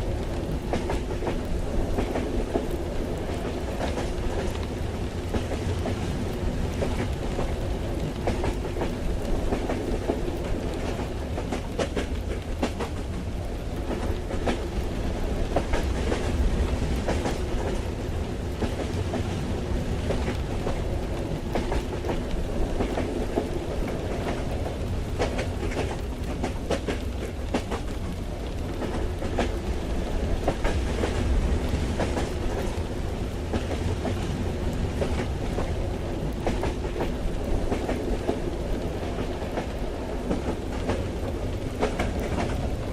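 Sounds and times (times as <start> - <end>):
rain hissing: 0.0 - 42.9
train wheels rumbling on track: 0.0 - 42.9.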